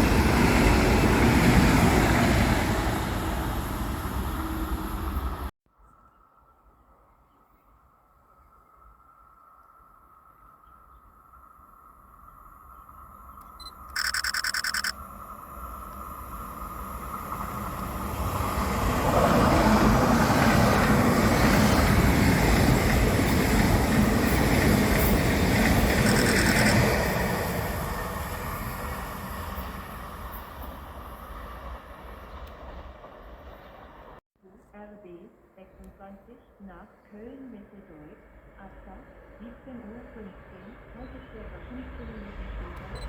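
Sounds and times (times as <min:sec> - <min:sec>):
train rumbling past: 0:00.0 - 0:05.5, 0:11.8 - 0:34.2, 0:36.7 - 0:43.0
short high pulsing tone: 0:13.6 - 0:14.9.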